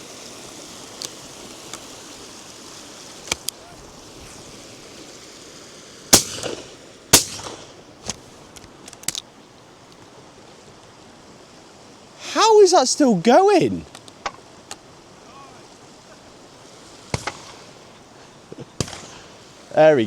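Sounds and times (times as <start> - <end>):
background rushing noise: 0.0 - 20.0
distant shotgun shots: 6.2 - 7.8, 17.1 - 17.7, 18.8 - 19.4
shotgun shots: 6.2 - 7.8, 17.1 - 17.7, 18.8 - 19.4.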